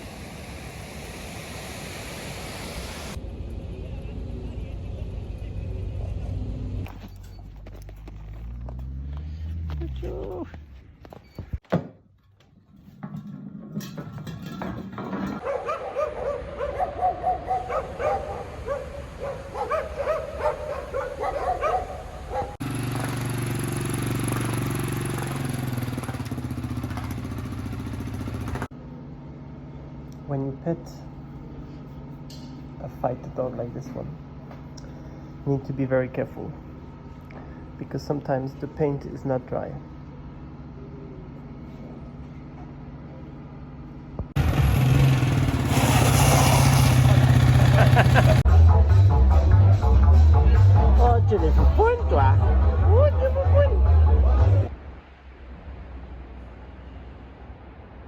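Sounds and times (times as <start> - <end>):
engine humming and running: 0.0 - 11.6, 17.7 - 30.3, 39.8 - 48.5
motorcycle engine running: 21.6 - 28.7, 44.4 - 48.4.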